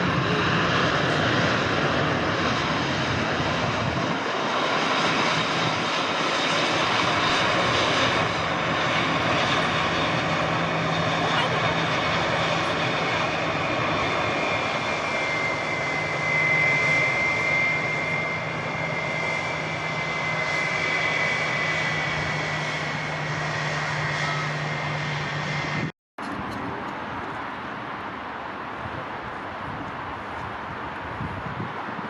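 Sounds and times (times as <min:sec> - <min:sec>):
jet engines roaring with whine: 0:00.0 - 0:32.0
rush of wind: 0:00.0 - 0:32.0.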